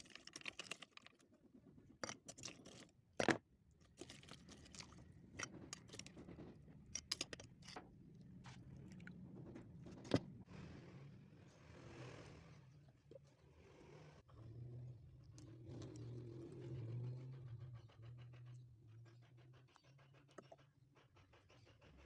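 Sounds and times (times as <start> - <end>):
close chewing and mouth sounds: 3.8 - 10.1, 19.0 - 22.0.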